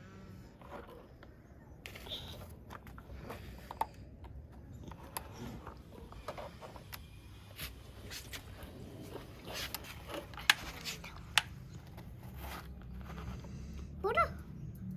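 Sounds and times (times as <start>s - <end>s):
toy vehicles clicking and scraping: 0.1s - 14.9s
soil rustling: 7.5s - 13.8s.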